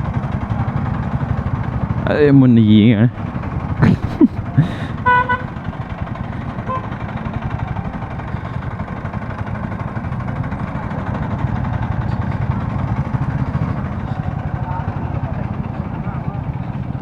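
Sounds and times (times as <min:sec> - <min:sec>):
motorcycle engine running: 0:00.0 - 0:17.0
road noise: 0:00.0 - 0:17.0
vehicle horn beeps: 0:04.8 - 0:05.7, 0:06.5 - 0:07.2.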